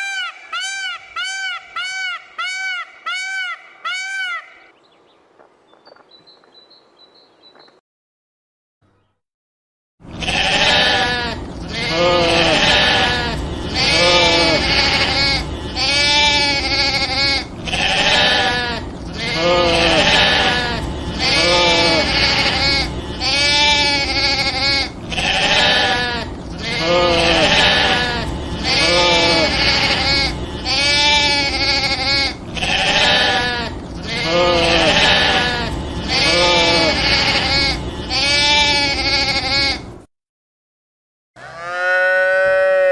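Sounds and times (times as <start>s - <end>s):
sheep bleating: 10.1s - 40.0s, 41.4s - 42.9s.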